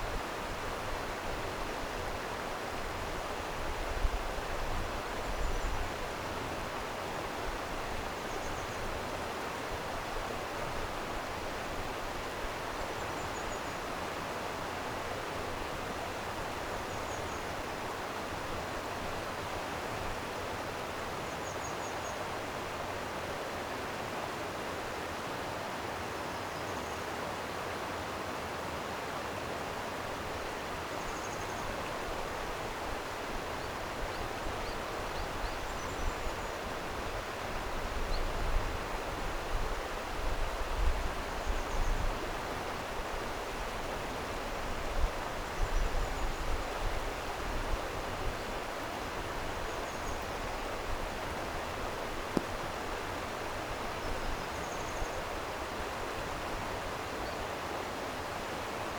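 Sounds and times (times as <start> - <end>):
stream rushing: 27.1 - 58.9
faint bird chirps: 53.9 - 55.3.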